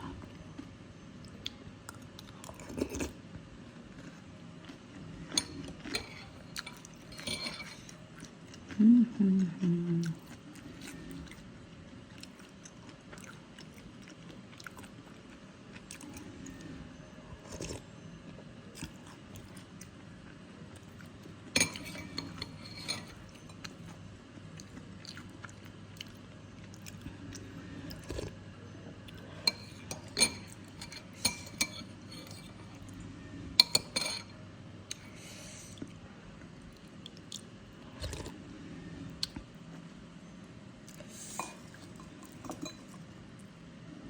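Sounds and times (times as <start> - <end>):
chewing with soft crunches: 0.1 - 33.0, 34.8 - 40.0, 40.8 - 43.6
metal spoon clinking on bowl: 21.6 - 23.6, 33.6 - 34.3, 42.3 - 43.0.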